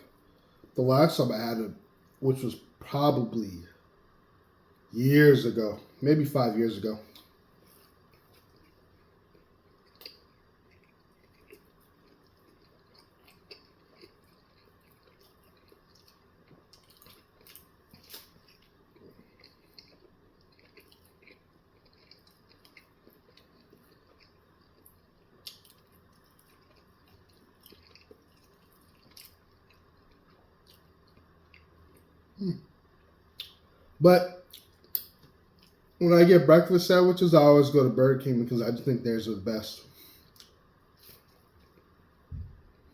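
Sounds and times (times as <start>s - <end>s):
chewing with wet clicks: 8.0s - 32.3s, 32.9s - 33.7s, 34.4s - 36.0s, 40.3s - 42.0s.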